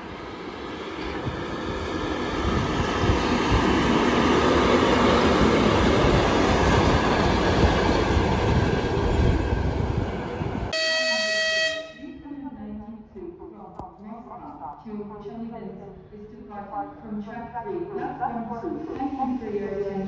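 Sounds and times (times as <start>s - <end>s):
train wheels rumbling on rails: 0.0s - 10.7s.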